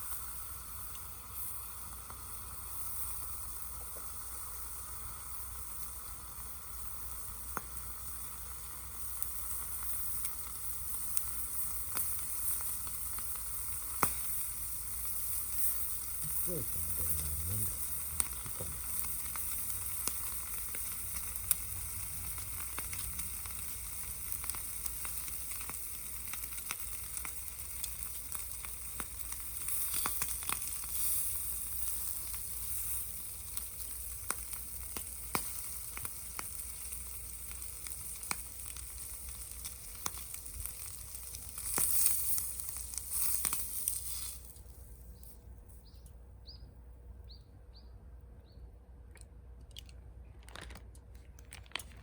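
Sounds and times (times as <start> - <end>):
food sizzling in a pan: 0.0 - 44.8
sharp crackles: 7.5 - 46.1, 49.1 - 52.0.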